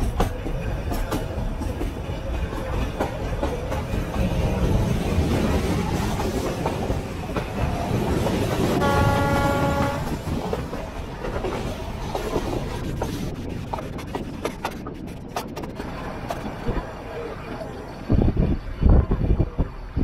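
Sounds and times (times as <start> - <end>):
train wheels rumbling on rails: 0.0 - 20.0
train horn: 8.7 - 10.3.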